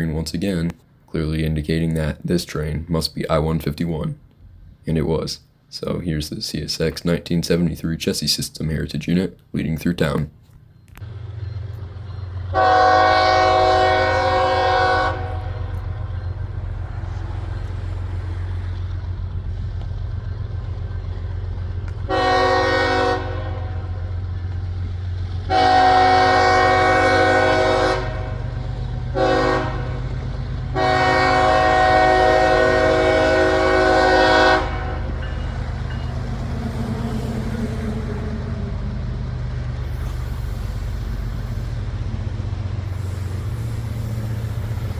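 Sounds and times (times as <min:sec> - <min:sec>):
diesel engine rumbling: 0:00.0 - 0:44.9
locomotive horn blasts: 0:12.5 - 0:15.9, 0:22.1 - 0:24.0, 0:25.5 - 0:28.5, 0:29.1 - 0:30.0, 0:30.7 - 0:35.4.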